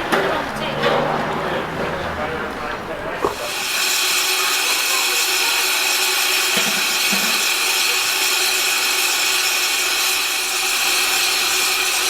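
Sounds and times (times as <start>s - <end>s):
steam hissing from locomotive: 3.2s - 12.0s.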